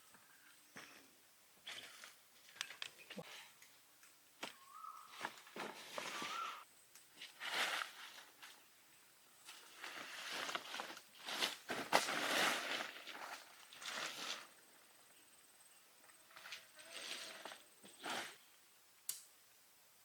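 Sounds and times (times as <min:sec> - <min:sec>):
rustling and scraping: 0:04.4 - 0:08.7, 0:09.4 - 0:14.6, 0:16.2 - 0:18.5
faint wavering whistle tone: 0:06.1 - 0:06.6.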